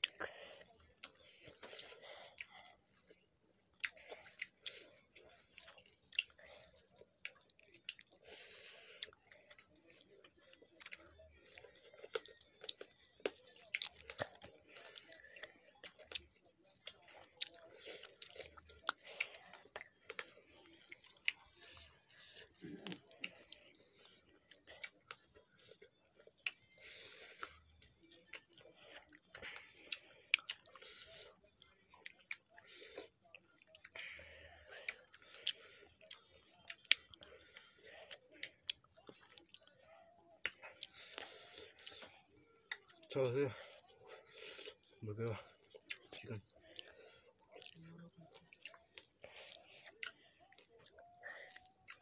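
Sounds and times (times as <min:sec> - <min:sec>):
chewing with wet mouth clicks: 0:00.0 - 0:52.0.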